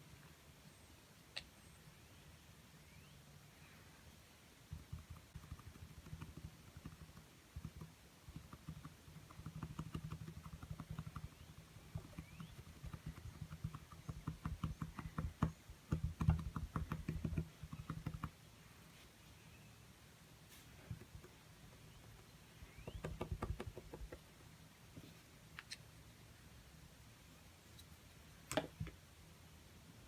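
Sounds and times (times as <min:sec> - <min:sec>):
paintbrush dabbing on canvas: 0:04.7 - 0:19.1, 0:20.4 - 0:25.2.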